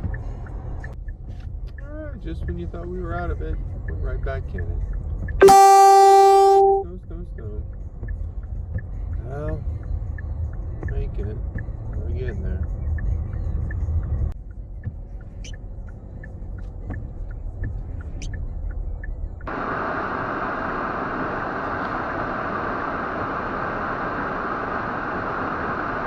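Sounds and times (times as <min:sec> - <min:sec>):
road rumble inside car: 0:07.8 - 0:26.0.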